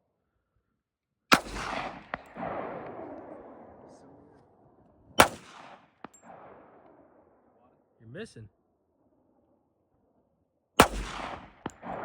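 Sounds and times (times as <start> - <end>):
handgun shots with rolling echo: 1.3 - 3.9, 5.2 - 7.0, 10.8 - 12.0.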